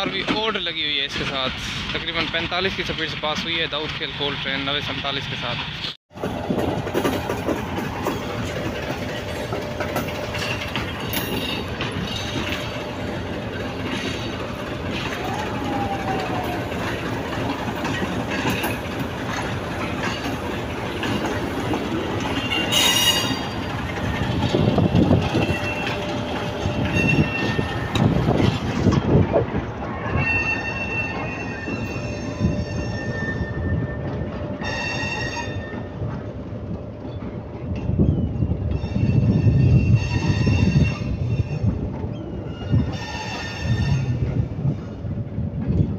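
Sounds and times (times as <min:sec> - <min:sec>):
train coaches rolling past: 0:00.0 - 0:45.9
high-pitched wheel squeals: 0:22.4 - 0:23.7, 0:25.4 - 0:28.1, 0:30.1 - 0:34.0, 0:38.1 - 0:44.2.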